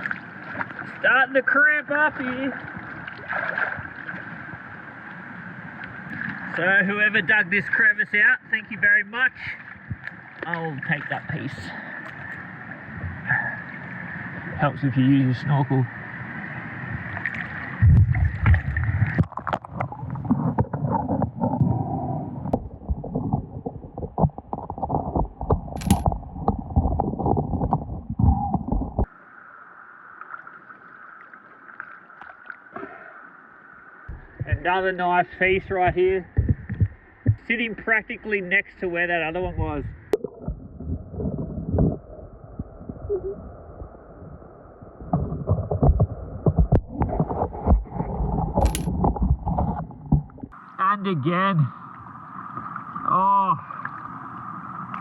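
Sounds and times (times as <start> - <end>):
water sloshing and gurgling: 0.0 - 6.7, 9.4 - 14.8, 16.0 - 37.9, 39.8 - 50.6
underwater stones knocking together: 22.6 - 29.1, 34.1 - 34.8, 35.6 - 37.5, 45.1 - 50.5
stones clicking and knocking: 25.8 - 26.1, 48.6 - 48.9.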